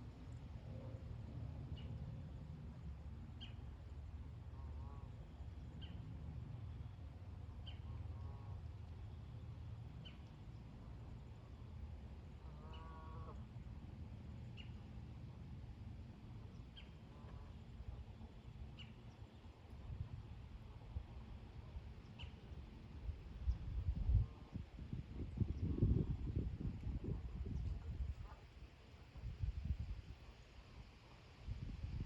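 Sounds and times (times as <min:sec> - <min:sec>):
low wind rumble: 0:00.0 - 0:32.0
distant geese honking: 0:12.3 - 0:13.5.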